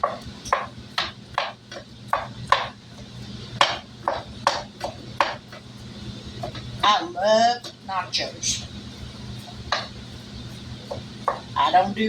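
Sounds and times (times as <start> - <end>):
utensil clacking on pan: 0.0 - 2.8, 3.6 - 5.7
microwave oven humming: 0.0 - 12.0.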